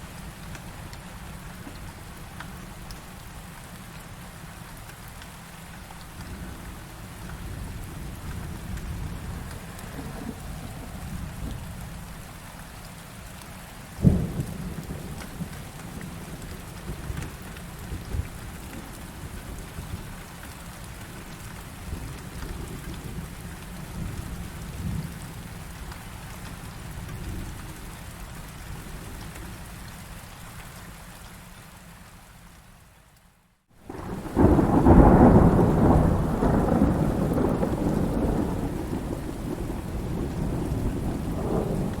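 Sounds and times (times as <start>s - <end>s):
steady rain: 0.0s - 42.0s
rumbling thunder: 14.0s - 20.0s, 33.9s - 42.0s.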